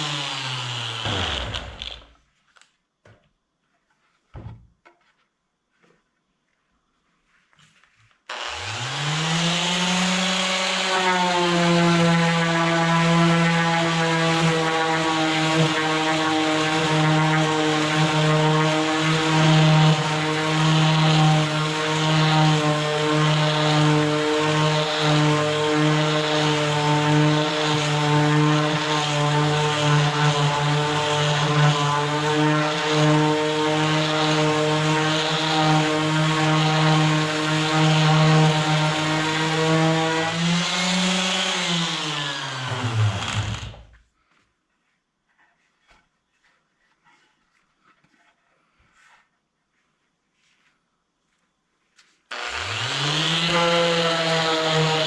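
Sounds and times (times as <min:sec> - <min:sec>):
power tool motor whirring: 0:00.0 - 0:02.1, 0:08.3 - 0:11.3, 0:40.3 - 0:43.9, 0:52.3 - 0:55.0.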